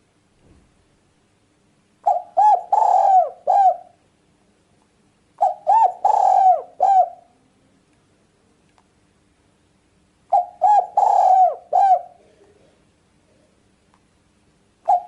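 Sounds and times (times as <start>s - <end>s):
dove cooing: 2.0s - 4.0s, 5.4s - 7.4s, 10.3s - 12.8s.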